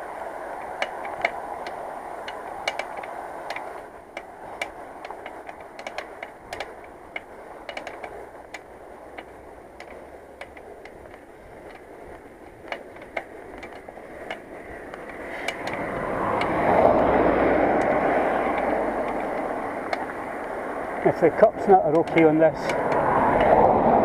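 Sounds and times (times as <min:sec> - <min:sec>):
bicycle clicking: 0:00.0 - 0:24.0
motor vehicle passing: 0:01.3 - 0:24.0.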